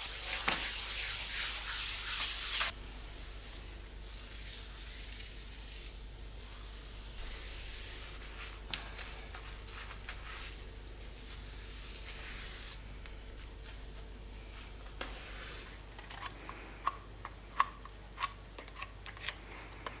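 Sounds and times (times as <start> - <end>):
soft rubbing hiss of cleaning: 0.0 - 15.8.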